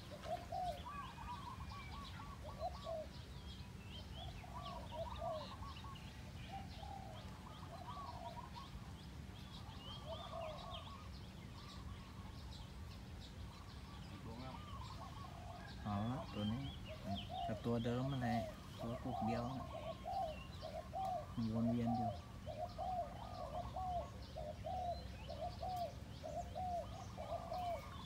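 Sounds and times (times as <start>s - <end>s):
doves cooing: 0.0s - 28.0s
small birds chirping: 0.0s - 28.0s.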